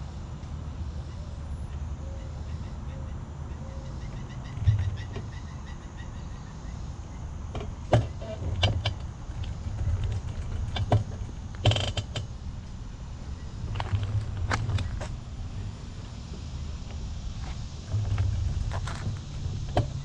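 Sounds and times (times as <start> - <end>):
bicycle riding rumble: 3.4 - 20.0
bicycle creaks and clicks: 8.0 - 12.4, 13.4 - 15.3, 16.8 - 20.0.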